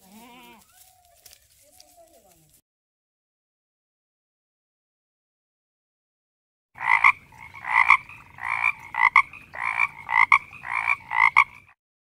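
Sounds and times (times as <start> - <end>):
frog croaking: 6.8 - 11.8.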